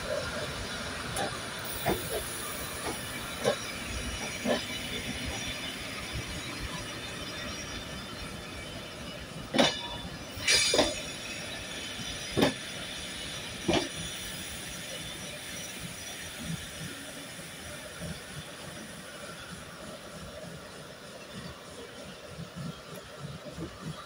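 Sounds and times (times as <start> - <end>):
high squeal and hiss: 1.6 - 20.1.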